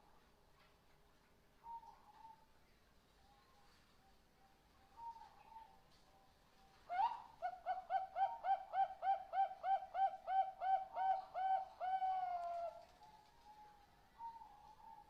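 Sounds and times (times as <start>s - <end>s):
dove cooing: 6.9s - 12.8s.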